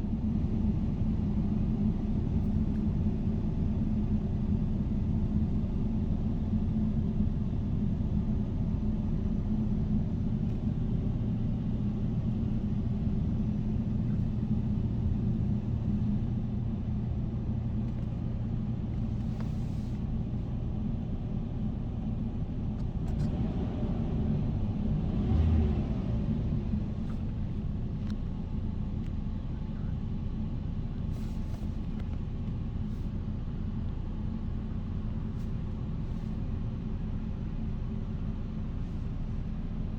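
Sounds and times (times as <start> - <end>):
car engine idling: 0.0 - 16.8.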